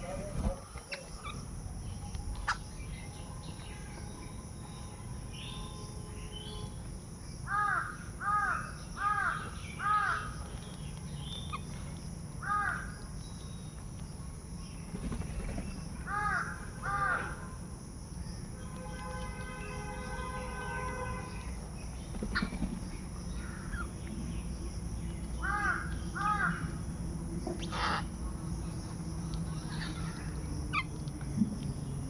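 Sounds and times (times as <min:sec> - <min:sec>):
steady low background noise: 0:00.0 - 0:18.6
crow cawing: 0:07.5 - 0:10.3, 0:16.1 - 0:17.4.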